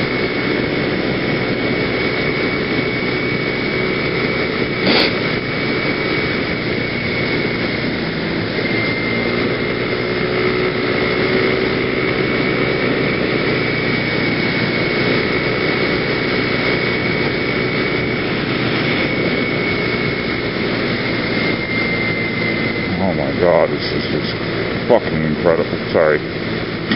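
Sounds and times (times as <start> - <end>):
rushing air: 0.0 - 23.2
high whine: 0.0 - 26.9
scooter engine running: 0.0 - 26.9.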